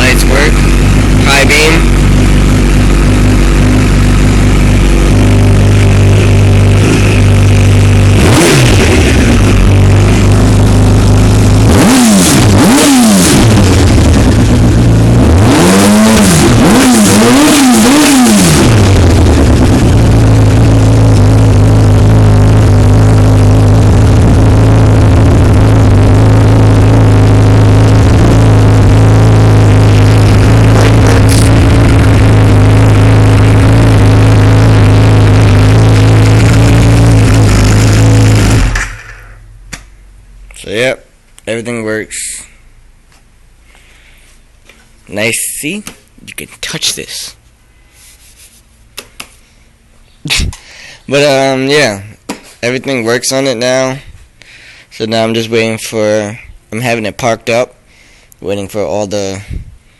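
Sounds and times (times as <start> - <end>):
motorcycle engine idling and revving: 0.0 - 40.6.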